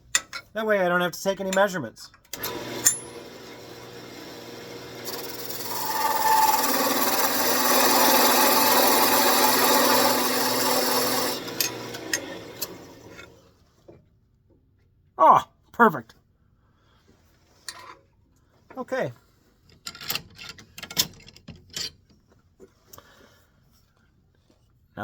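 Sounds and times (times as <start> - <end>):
parting tool cutting wood: 2.3 - 13.4
wood lathe hum: 2.4 - 13.4.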